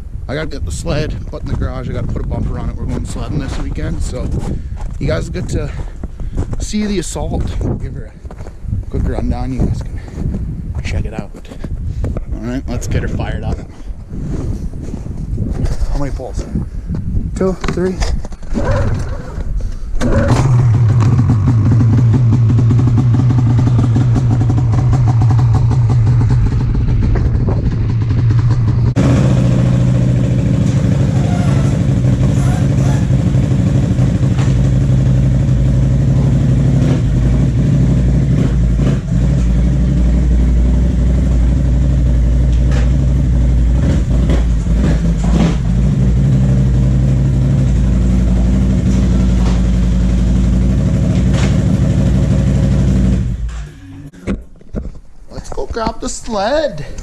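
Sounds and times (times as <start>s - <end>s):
snowmobile engine running: 20.0s - 39.1s.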